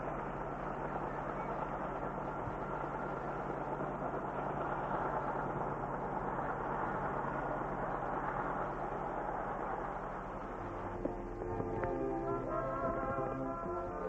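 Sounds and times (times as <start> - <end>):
locomotive engine drone: 0.0 - 14.0
train rolling: 0.0 - 14.0.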